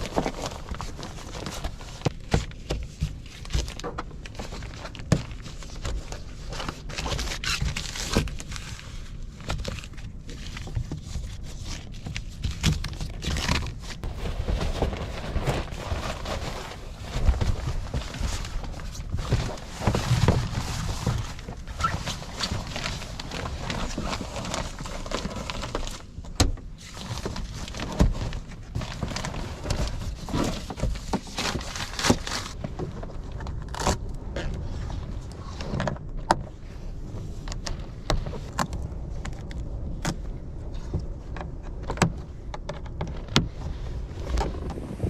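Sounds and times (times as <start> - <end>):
strong wind rumbling: 32.5 - 45.0.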